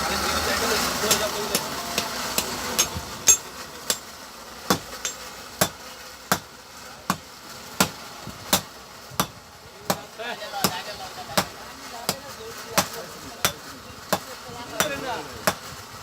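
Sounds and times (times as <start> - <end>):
hammer striking metal: 1.1 - 4.1, 4.7 - 6.5, 7.1 - 10.8, 12.8 - 15.6.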